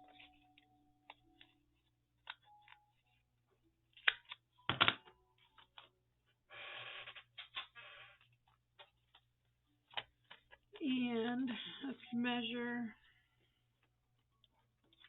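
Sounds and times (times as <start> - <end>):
paper rustling: 0.0 - 3.3.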